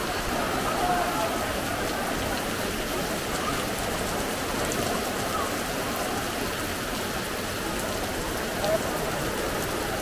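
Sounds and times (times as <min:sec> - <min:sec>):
heavy rain falling on water and paving: 0:00.0 - 0:10.0.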